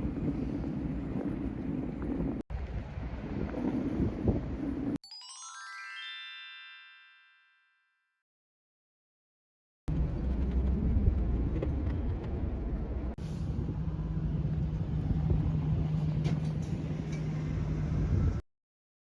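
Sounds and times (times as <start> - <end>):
low engine rumble: 9.9 - 18.4.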